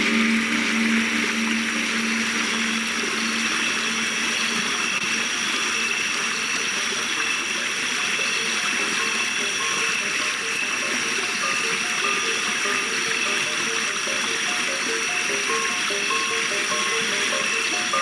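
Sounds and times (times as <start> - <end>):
faint high tones: 0.0 - 5.9
low synth drone: 0.0 - 6.8
running water rushing: 0.0 - 18.0.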